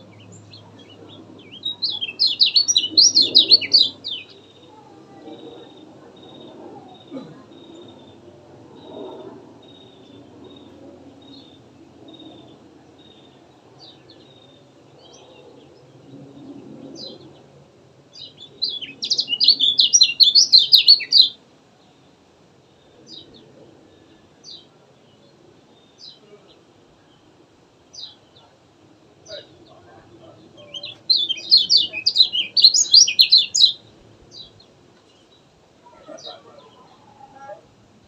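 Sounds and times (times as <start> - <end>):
small bird chirping and twittering: 0.0 - 17.4, 18.1 - 21.4, 29.2 - 37.5.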